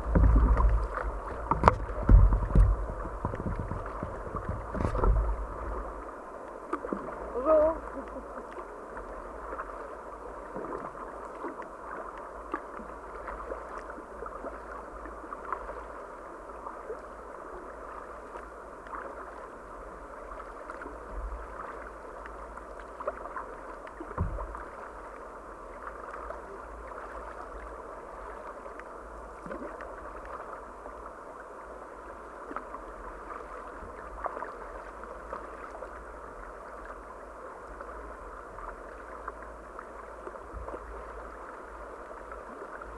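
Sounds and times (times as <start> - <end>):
knocks on kayak: 0.0 - 5.8, 24.2 - 24.6
low thump: 0.0 - 6.0, 24.2 - 24.6
river water gurgling and lapping: 0.0 - 42.9.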